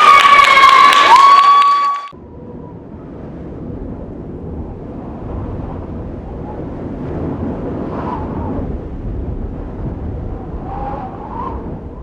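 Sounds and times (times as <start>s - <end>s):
audience applauding and cheering: 0.0s - 2.2s.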